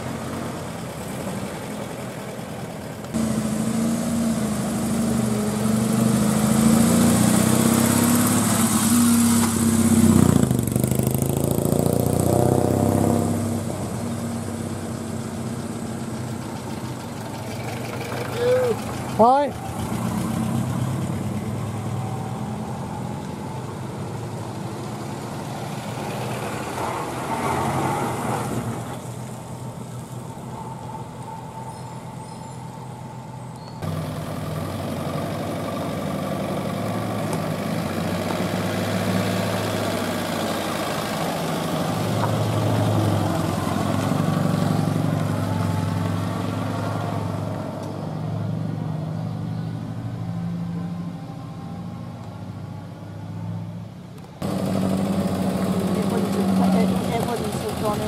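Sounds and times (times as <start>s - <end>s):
car engine idling close by: 0.0s - 5.6s, 13.6s - 23.6s, 28.6s - 48.2s, 53.8s - 58.0s
car engine running low: 0.0s - 53.2s, 53.8s - 58.0s.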